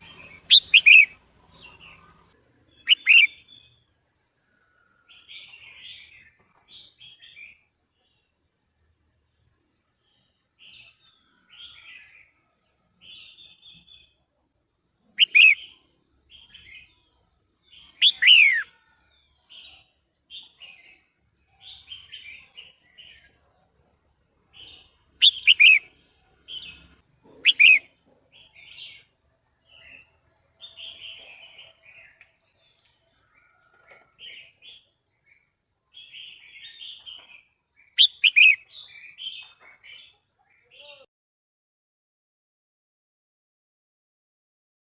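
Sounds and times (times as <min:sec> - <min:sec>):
bird sharp downward-sweeping calls: 0:00.0 - 0:01.2, 0:02.8 - 0:03.4, 0:15.2 - 0:15.6, 0:18.0 - 0:18.7, 0:25.2 - 0:25.9, 0:27.4 - 0:27.9, 0:38.0 - 0:38.6
bird high chirps: 0:00.0 - 0:03.8, 0:15.1 - 0:17.0, 0:17.7 - 0:18.9, 0:24.5 - 0:29.1, 0:36.0 - 0:41.1.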